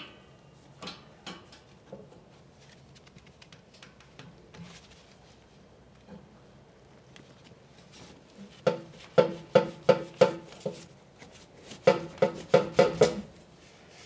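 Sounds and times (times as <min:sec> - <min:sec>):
metal knocks on exhaust pipe: 0:08.7 - 0:10.5, 0:11.9 - 0:13.3.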